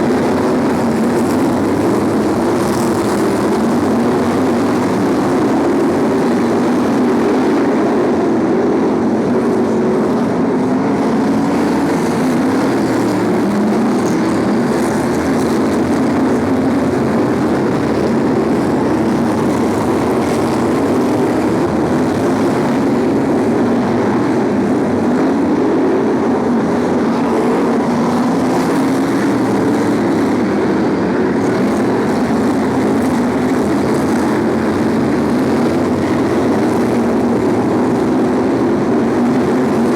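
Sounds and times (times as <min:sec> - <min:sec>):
racing car engines droning: 0:00.0 - 0:39.9.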